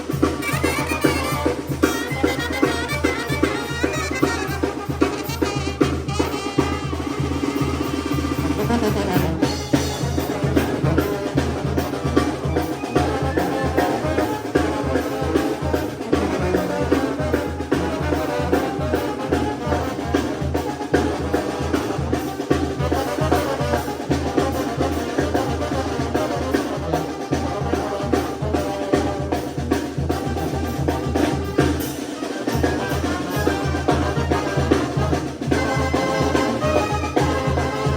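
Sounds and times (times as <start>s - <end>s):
brass band playing: 0.0s - 37.9s
bass drum beat: 8.0s - 13.3s.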